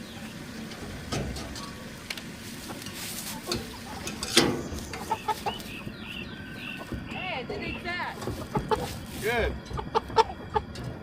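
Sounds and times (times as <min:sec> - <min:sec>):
chickens clucking: 0:00.0 - 0:11.0
knocks and rustling: 0:06.8 - 0:11.0.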